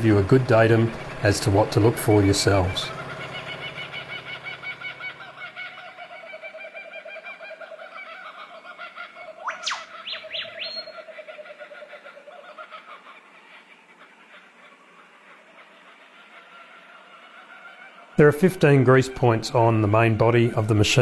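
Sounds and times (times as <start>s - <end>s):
bird rising whistles: 9.4s - 11.0s
bird pulsing trill: 9.4s - 11.4s.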